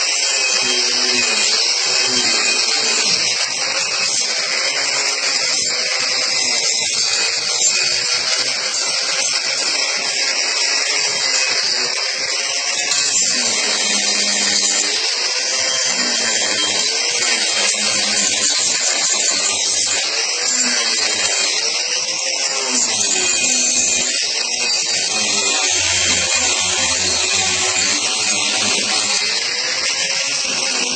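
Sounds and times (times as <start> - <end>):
angle grinder rasping wood: 0.0 - 30.9.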